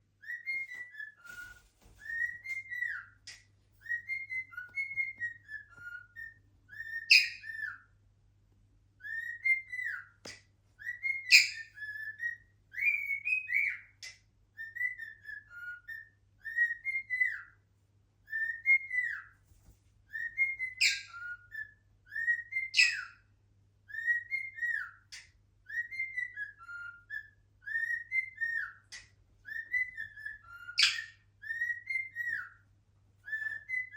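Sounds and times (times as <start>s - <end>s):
cockatiel whistling: 0.2s - 7.9s, 9.0s - 17.6s, 18.3s - 19.3s, 20.1s - 23.2s, 23.8s - 32.6s, 33.2s - 33.9s
shrill bird notes: 29.5s - 32.6s.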